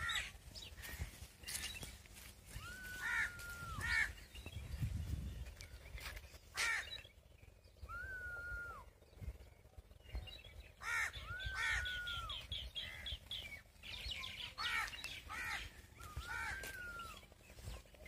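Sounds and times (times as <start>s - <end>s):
wind rumble on microphone: 0.0s - 6.4s
harsh bird calls: 0.0s - 18.0s
long whistled bird notes: 7.7s - 9.1s.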